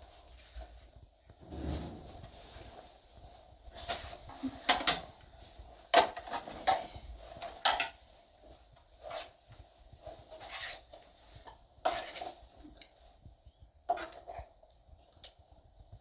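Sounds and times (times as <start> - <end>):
quiet scraping: 1.4 - 2.9, 10.0 - 12.4
objects knocking and clattering: 3.8 - 5.2, 5.9 - 8.0.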